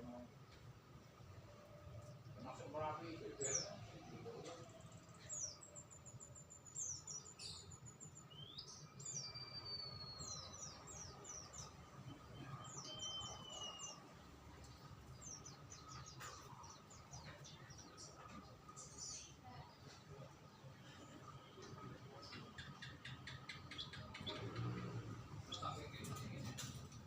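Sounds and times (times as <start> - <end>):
songbirds chirping: 0.0 - 27.0.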